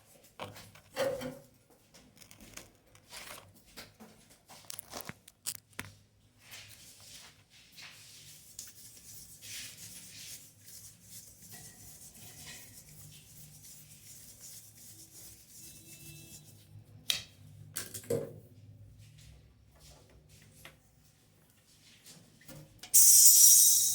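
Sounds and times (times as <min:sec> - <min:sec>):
hands rubbing and scraping fitting: 0:06.6 - 0:16.6.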